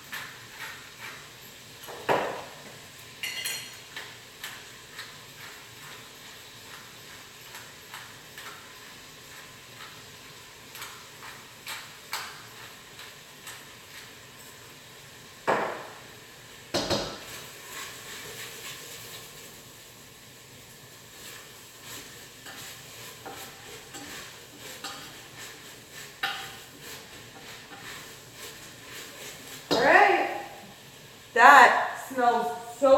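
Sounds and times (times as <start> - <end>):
utensils and cookware clinking: 0.0 - 14.8, 21.2 - 30.2.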